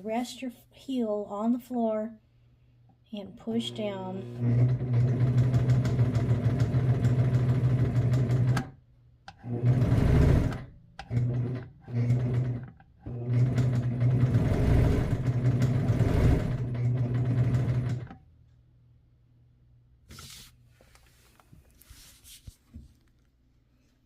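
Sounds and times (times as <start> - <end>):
electric sewing machine running: 3.3 - 8.7, 9.4 - 18.2.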